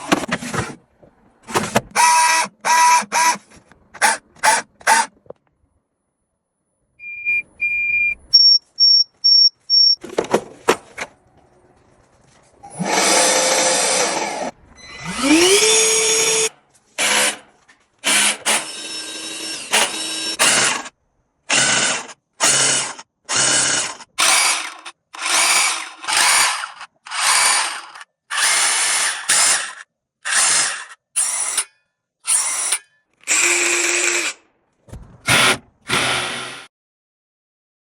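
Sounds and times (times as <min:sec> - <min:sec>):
high electronic beeps: 0:07.0 - 0:10.0.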